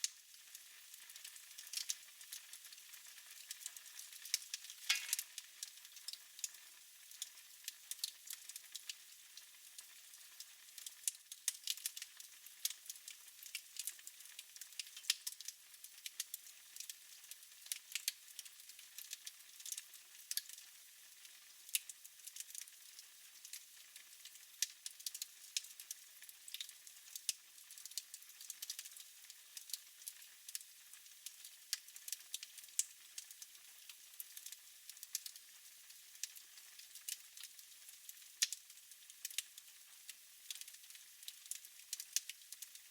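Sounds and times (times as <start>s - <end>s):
fire crackling and popping: 0.0s - 8.9s, 10.8s - 16.9s, 36.2s - 38.6s, 40.4s - 42.8s.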